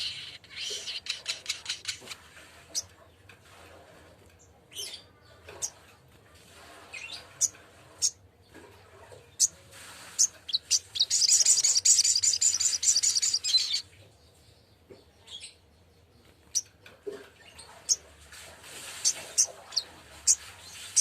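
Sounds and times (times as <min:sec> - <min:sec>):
fast rattling bird trill: 0:00.0 - 0:02.1, 0:10.2 - 0:13.8, 0:19.0 - 0:21.0
sharp high bird chips: 0:10.2 - 0:13.8.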